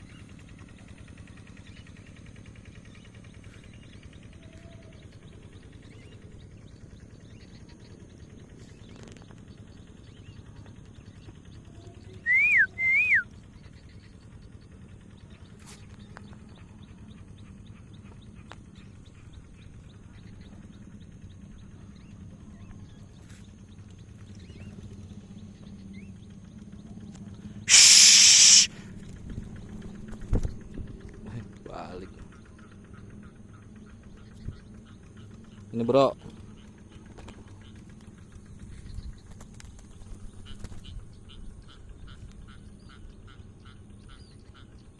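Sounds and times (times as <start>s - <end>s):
low steady rumble: 0.0s - 44.9s
short whistled notes: 12.3s - 13.2s, 27.7s - 28.7s
loud hissing rush: 27.7s - 28.8s.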